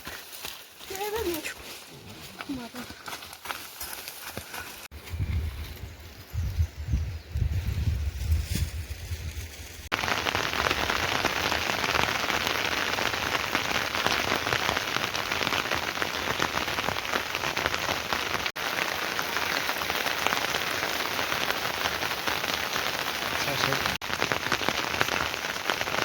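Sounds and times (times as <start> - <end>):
heavy rain pouring: 9.9 - 26.0.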